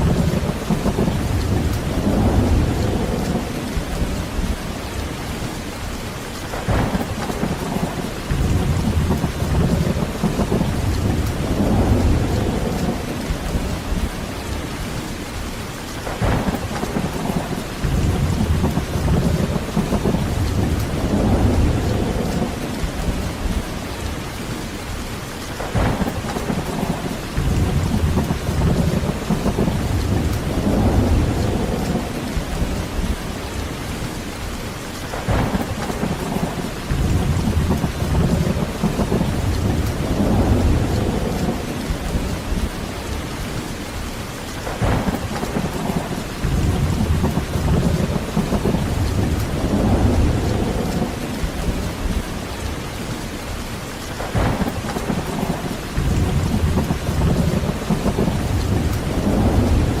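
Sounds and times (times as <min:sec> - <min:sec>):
rolling thunder: 0:00.0 - 0:05.1, 0:06.5 - 0:14.5, 0:16.0 - 0:23.9, 0:25.6 - 0:33.7, 0:35.1 - 0:43.4, 0:44.6 - 1:00.0
heavy rain: 0:00.0 - 1:00.0
sharp thunder crack: 0:06.5 - 0:13.4, 0:16.0 - 0:23.2, 0:25.6 - 0:32.4, 0:35.1 - 0:42.0, 0:44.6 - 0:52.2, 0:54.2 - 1:00.0.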